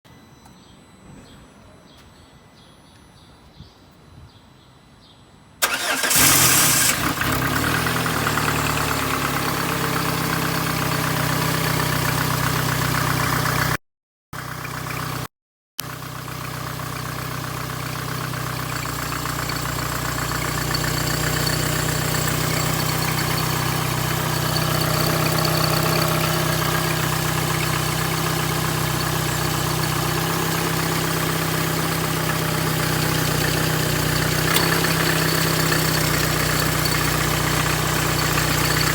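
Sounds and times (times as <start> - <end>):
car engine cranking and starting: 5.6 - 13.8, 14.4 - 38.9
car engine idling: 5.6 - 13.8, 15.9 - 38.9.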